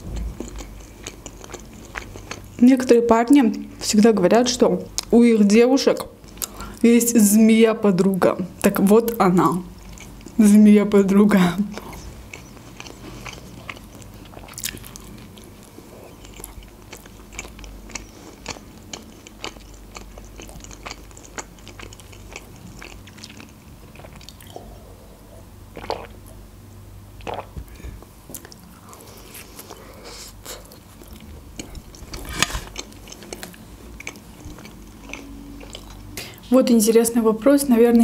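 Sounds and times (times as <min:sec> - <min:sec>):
chewing and crunching pizza: 0:00.0 - 0:02.9, 0:09.6 - 0:10.5, 0:11.1 - 0:24.7, 0:28.3 - 0:36.4.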